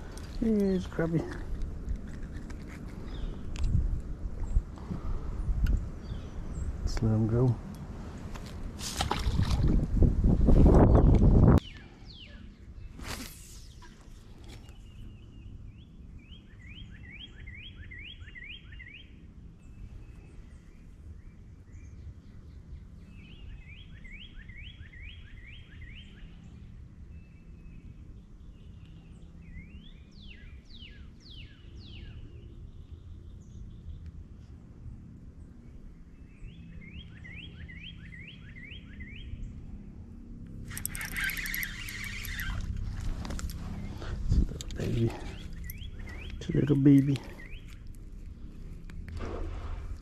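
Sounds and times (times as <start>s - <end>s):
songbirds singing: 0.0s - 8.4s, 10.7s - 49.2s
low outdoor rumble: 38.8s - 50.0s.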